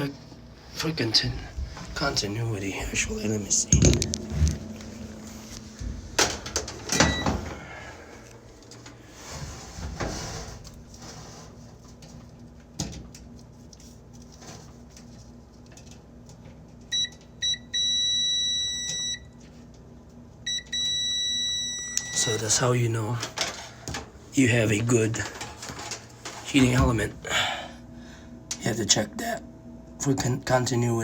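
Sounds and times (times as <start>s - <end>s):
clicks and knocks: 3.6s - 7.4s
multimeter beeping: 6.9s - 7.5s, 16.9s - 19.3s, 20.5s - 22.6s.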